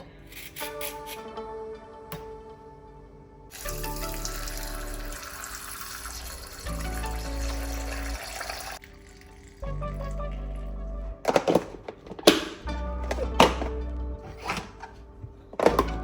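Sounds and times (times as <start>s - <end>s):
background music with bass: 3.6s - 5.2s, 6.7s - 8.4s, 9.6s - 16.0s
tap water running into sink: 3.6s - 9.3s.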